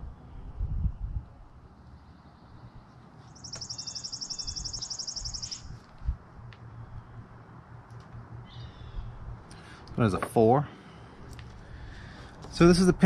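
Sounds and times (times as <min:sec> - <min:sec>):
bird trilling: 0:03.3 - 0:05.8.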